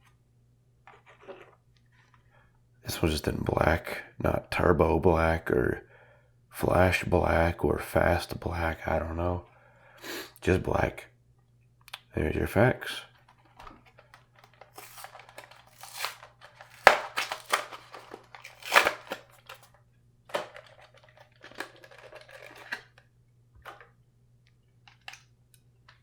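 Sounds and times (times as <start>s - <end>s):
faint low hum: 0.0s - 26.0s
plastic and cardboard crinkling: 13.0s - 24.0s, 24.8s - 25.2s.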